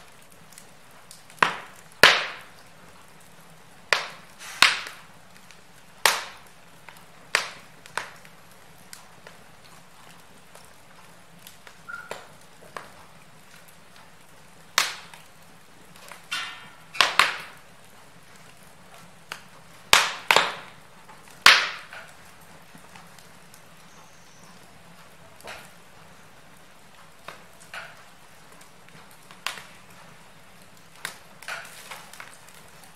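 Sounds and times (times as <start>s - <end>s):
faint steady hiss: 0.0s - 32.9s
sharp fire pops: 0.0s - 32.9s
wood fire crackling: 0.0s - 32.9s.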